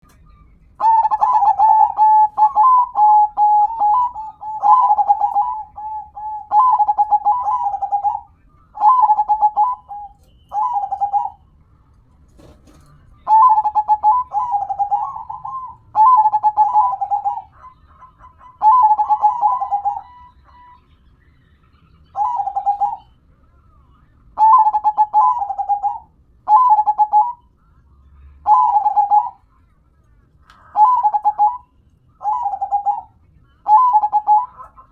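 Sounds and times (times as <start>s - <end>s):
dove cooing: 0.8s - 11.5s, 13.2s - 20.9s, 22.0s - 23.1s, 24.4s - 27.4s, 28.4s - 29.4s, 30.7s - 31.6s, 32.2s - 34.9s.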